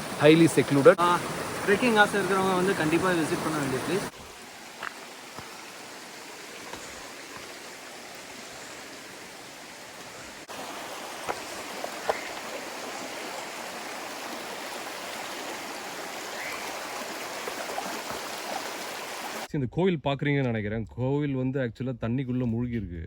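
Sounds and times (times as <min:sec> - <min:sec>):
running water rushing: 0:00.0 - 0:19.5.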